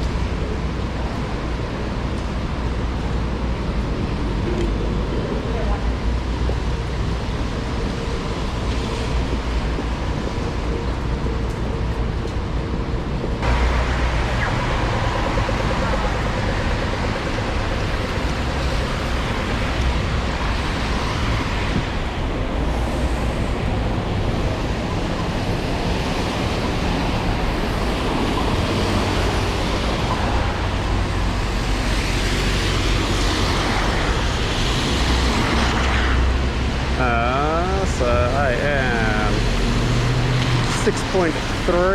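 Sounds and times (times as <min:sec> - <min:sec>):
city street traffic: 0:00.0 - 0:41.9
heavy rain hissing: 0:28.7 - 0:41.9.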